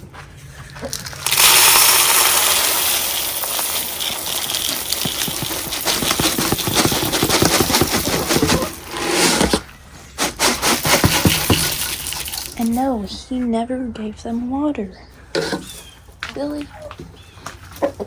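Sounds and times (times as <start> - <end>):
dry feed pouring into container: 0.9 - 9.6, 10.2 - 12.9.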